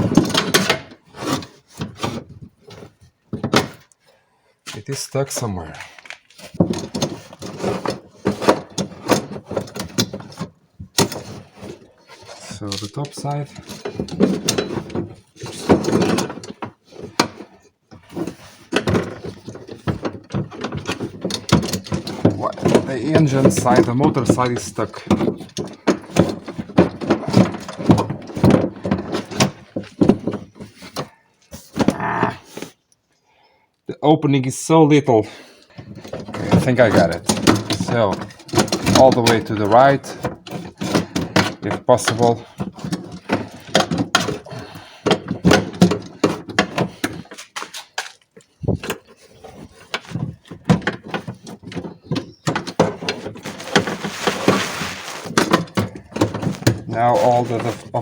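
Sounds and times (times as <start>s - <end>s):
metal clanks and knocks: 0.0s - 3.9s, 6.5s - 32.4s, 35.7s - 48.0s, 48.6s - 58.0s
scraping rattle: 35.8s - 58.0s.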